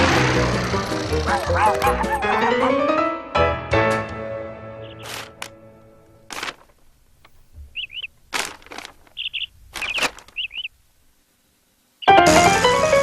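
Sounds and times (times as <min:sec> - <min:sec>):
cartoon bird chirping: 0:01.3 - 0:02.6, 0:07.7 - 0:08.1, 0:09.2 - 0:10.7, 0:12.0 - 0:12.7.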